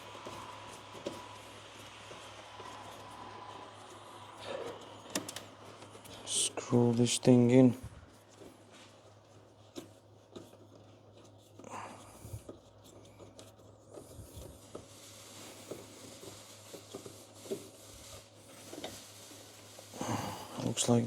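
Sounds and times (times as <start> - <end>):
hands rubbing plastic: 7.8 - 20.0.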